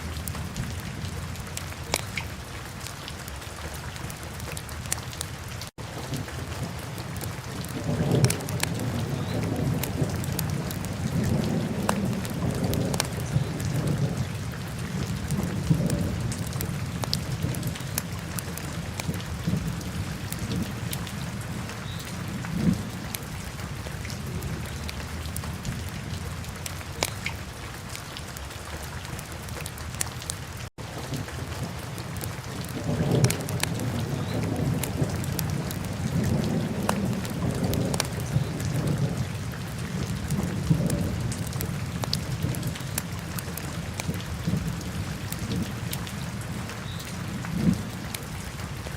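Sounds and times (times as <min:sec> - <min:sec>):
fire crackling and popping: 0:01.6 - 0:02.3, 0:07.9 - 0:13.2, 0:26.6 - 0:27.4, 0:32.1 - 0:33.9.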